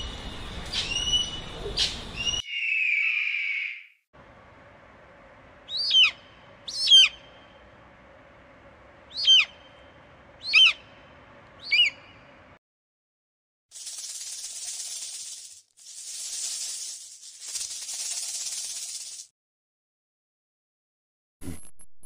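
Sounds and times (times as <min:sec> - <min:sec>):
eagle calling: 0:05.7 - 0:07.3, 0:09.1 - 0:09.7, 0:10.4 - 0:10.9, 0:11.6 - 0:12.1.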